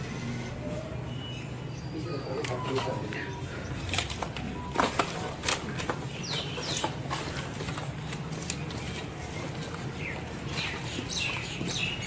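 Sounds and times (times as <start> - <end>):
steady low hum: 0.0 - 0.8
birds chirping: 0.0 - 4.8, 5.7 - 7.4, 8.6 - 12.0.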